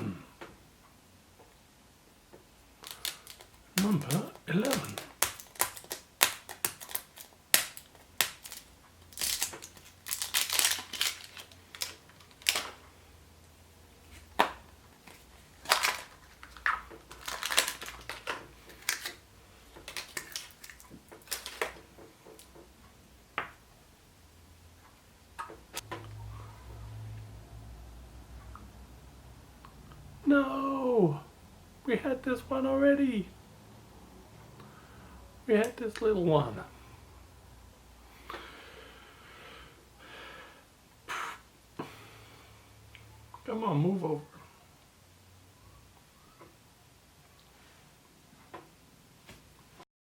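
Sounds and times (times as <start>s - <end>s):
plastic egg halves clicking: 2.8s - 12.8s, 19.8s - 21.8s
wrapper crinkling: 2.8s - 12.8s, 14.1s - 22.5s.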